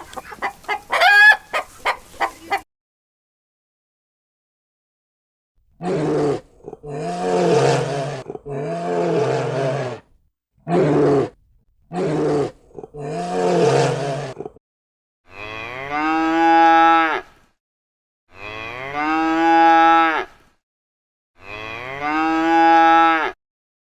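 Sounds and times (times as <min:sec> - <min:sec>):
cow mooing: 0:15.3 - 0:17.3, 0:18.3 - 0:20.3, 0:21.4 - 0:23.4.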